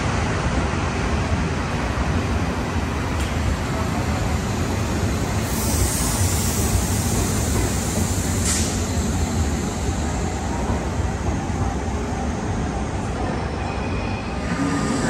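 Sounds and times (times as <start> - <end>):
train wheels rumbling on rails: 0.0 - 15.0
high hiss: 5.3 - 10.5.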